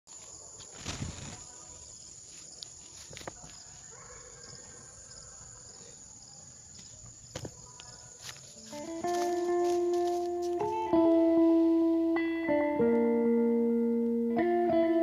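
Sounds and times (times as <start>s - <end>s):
high-pitched insect drone: 8.2s - 10.8s.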